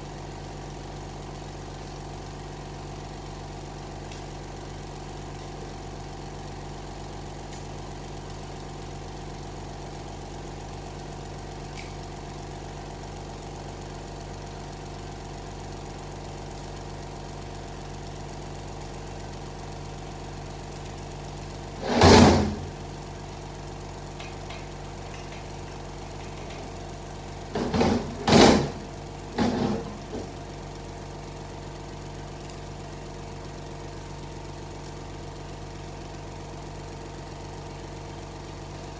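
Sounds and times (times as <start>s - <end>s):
steady machine hum: 21.4s - 31.4s.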